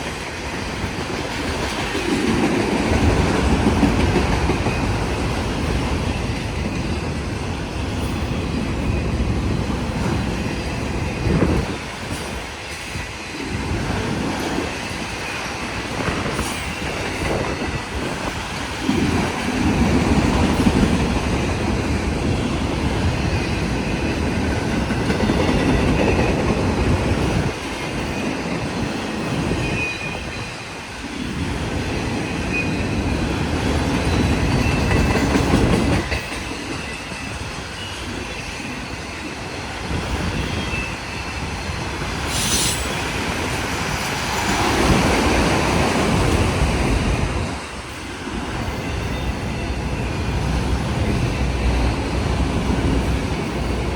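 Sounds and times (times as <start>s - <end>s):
freight cars rolling on rails: 0.0s - 53.9s
brief sharp high sound: 42.3s - 43.0s
faint wheel squeal: 42.3s - 43.0s.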